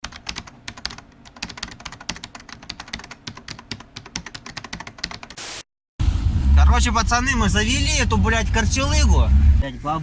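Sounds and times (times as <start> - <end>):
rapid keyboard typing: 0.0 - 5.4.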